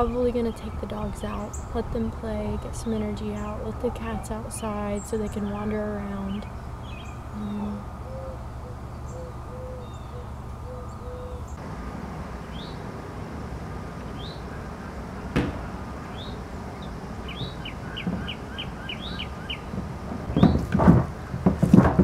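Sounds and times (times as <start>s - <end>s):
birds calling: 0.0s - 21.6s
sharp knock: 15.3s - 15.7s.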